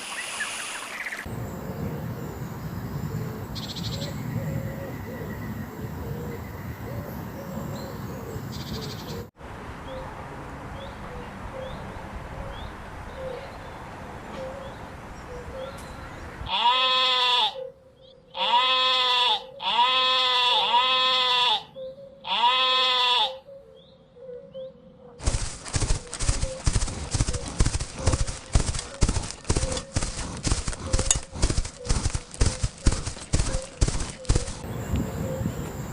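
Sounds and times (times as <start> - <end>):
goat bleating: 16.5 - 17.6, 18.4 - 21.7, 22.3 - 23.4.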